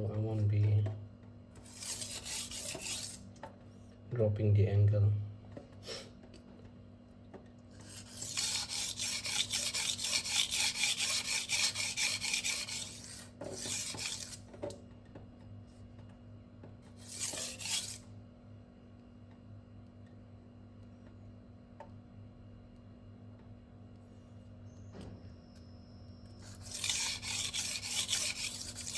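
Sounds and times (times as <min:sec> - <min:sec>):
knife scraping on sharpening stone: 0:01.6 - 0:03.2, 0:07.8 - 0:14.4, 0:17.0 - 0:18.0, 0:26.4 - 0:28.9.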